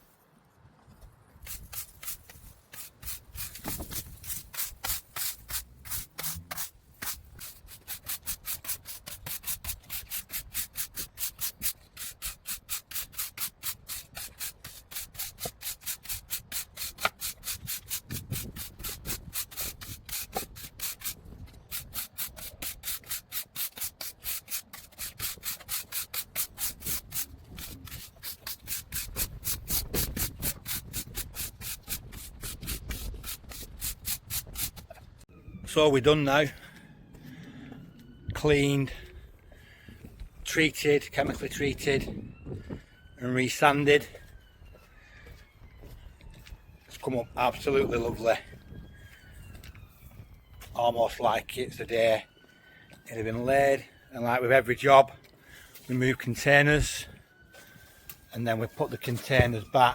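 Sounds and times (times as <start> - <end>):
stiff brush sweeping sand: 1.4 - 21.1.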